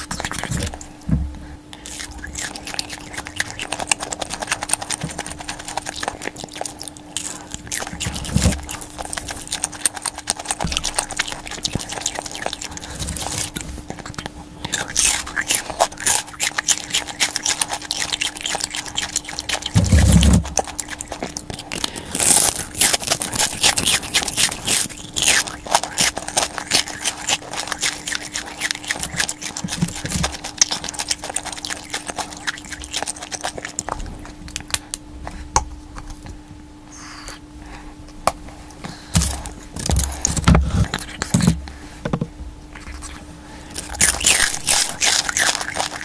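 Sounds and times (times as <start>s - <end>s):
faint steady hum: 0.0s - 46.0s
crunching of fried chicken skin: 1.8s - 35.0s, 42.8s - 46.0s.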